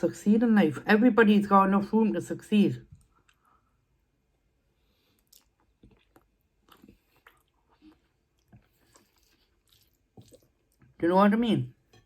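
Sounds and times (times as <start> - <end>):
chewing food: 4.9 - 11.0.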